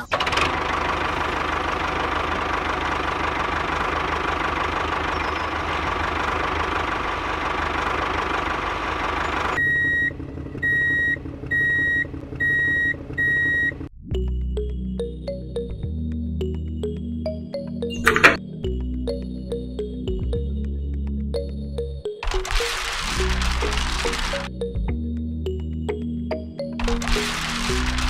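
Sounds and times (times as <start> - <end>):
high electronic beeps: 9.5 - 13.8, 17.9 - 18.4
small electric motor buzzing: 22.4 - 24.5.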